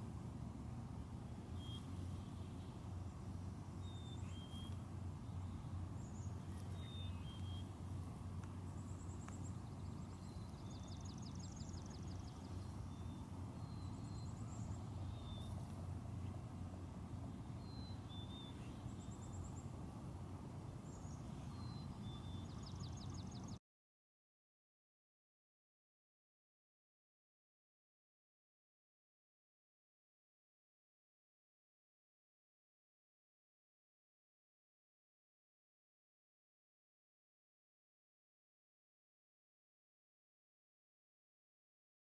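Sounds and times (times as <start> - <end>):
small birds chirping and trilling: 1.5 - 16.4, 17.5 - 20.0, 20.6 - 23.6.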